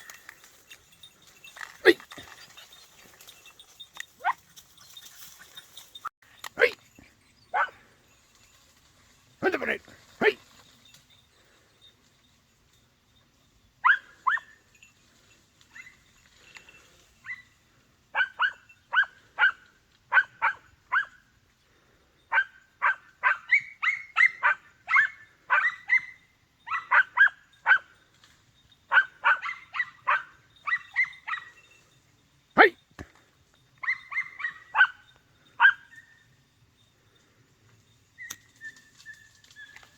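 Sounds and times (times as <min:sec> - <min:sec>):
puppies yelping: 0:07.3 - 0:07.8, 0:28.9 - 0:31.6, 0:33.8 - 0:35.0.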